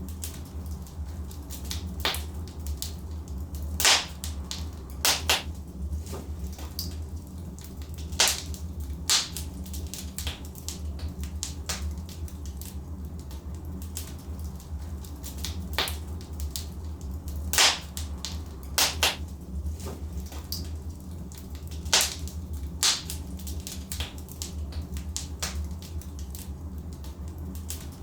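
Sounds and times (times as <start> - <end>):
logs crackling in fireplace: 0.0 - 28.0
steady low rumble: 0.0 - 28.0
sharp pops: 3.8 - 4.2, 18.8 - 19.2.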